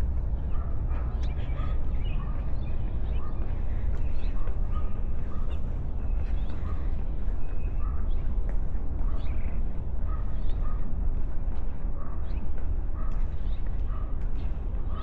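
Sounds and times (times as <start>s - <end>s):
birds calling: 0.4s - 8.2s.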